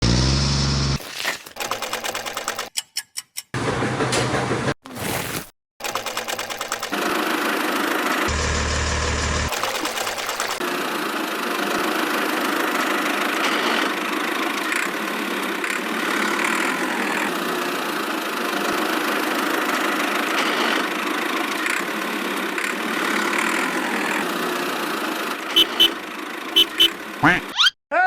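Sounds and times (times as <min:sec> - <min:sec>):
small motor running: 0:08.3 - 0:10.6.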